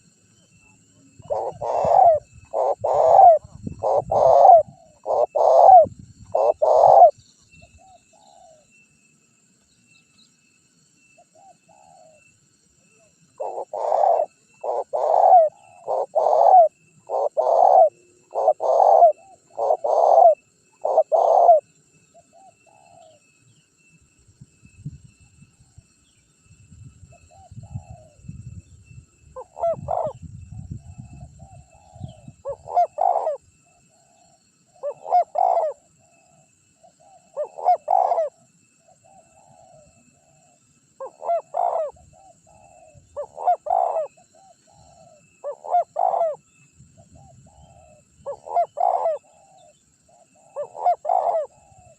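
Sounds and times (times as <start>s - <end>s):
dove cooing: 1.1s - 7.2s, 7.8s - 8.6s, 13.0s - 23.2s, 29.4s - 30.3s, 31.1s - 38.4s, 39.0s - 51.9s.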